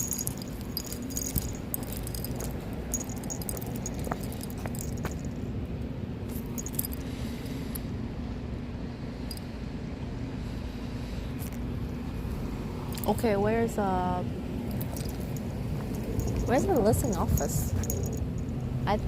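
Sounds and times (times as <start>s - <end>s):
light metallic jingling: 0.0s - 5.6s, 6.3s - 7.8s, 14.7s - 18.9s.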